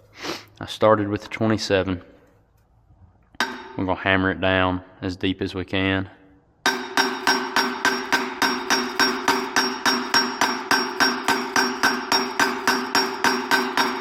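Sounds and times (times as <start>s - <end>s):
hammer striking metal socket: 3.4s - 3.8s, 6.7s - 14.0s.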